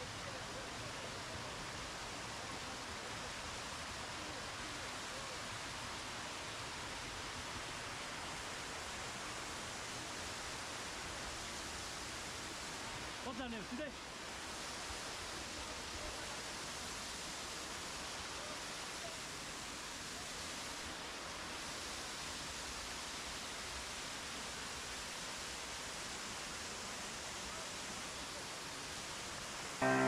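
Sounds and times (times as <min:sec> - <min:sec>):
rushing water: 0:00.0 - 0:30.0.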